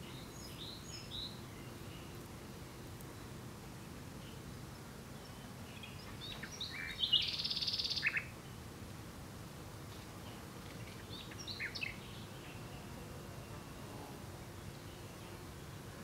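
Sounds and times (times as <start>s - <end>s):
nightingale singing: 0.0s - 2.2s, 5.2s - 8.6s, 10.8s - 12.9s.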